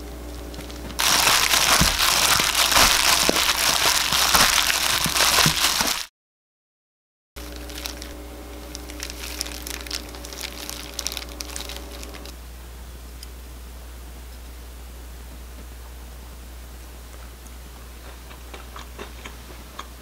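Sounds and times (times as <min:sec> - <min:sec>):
faint steady hum: 0:00.0 - 0:06.0, 0:07.4 - 0:20.0
seaweed sheets crinkling: 0:00.5 - 0:06.1, 0:07.4 - 0:12.3.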